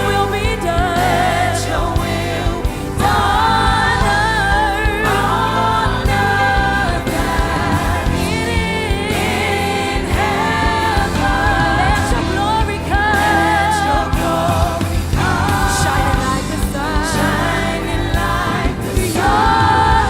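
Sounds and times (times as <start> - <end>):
band accompaniment: 0.0 - 20.0
voices singing with vibrato: 0.0 - 20.0.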